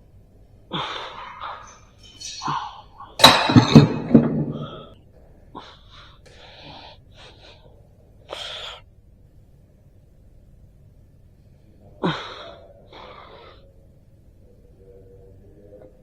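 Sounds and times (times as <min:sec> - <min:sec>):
person breathing hard: 0:04.5 - 0:08.9.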